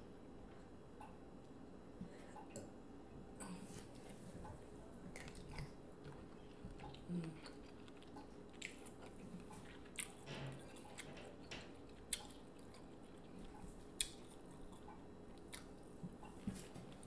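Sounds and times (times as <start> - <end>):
slow chewing: 3.4 - 17.0.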